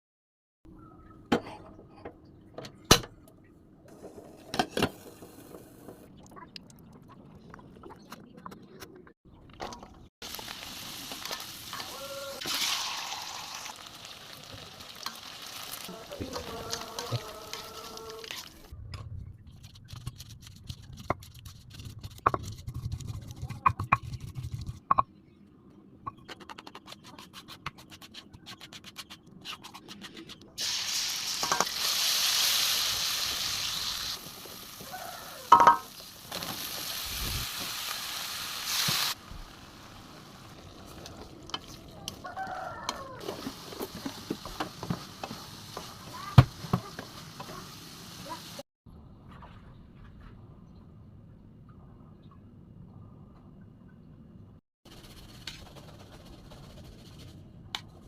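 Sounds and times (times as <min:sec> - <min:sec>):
oil crackling and sizzling in pan: 0:10.2 - 0:18.4, 0:30.6 - 0:41.8, 0:43.2 - 0:48.6
stirring noises: 0:14.5 - 0:18.7.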